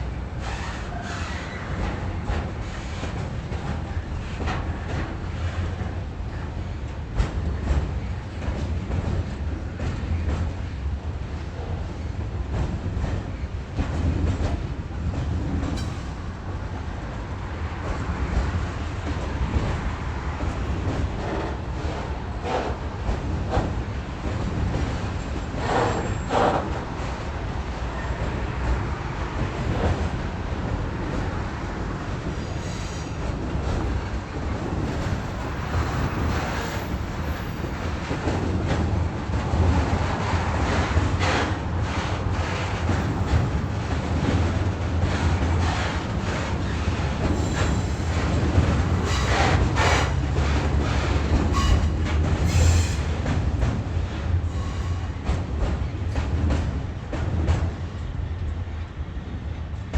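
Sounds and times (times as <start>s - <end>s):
train rumbling on track: 0.0s - 59.9s
train wheel squeal: 0.4s - 4.0s, 25.2s - 26.8s, 32.4s - 33.3s, 34.8s - 38.4s, 45.6s - 48.3s, 48.9s - 53.2s, 54.4s - 55.4s.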